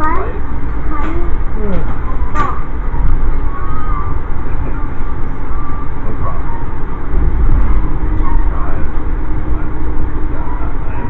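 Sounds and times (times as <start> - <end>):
faint voices: 0.0 - 11.0
train rumbling: 0.0 - 11.0.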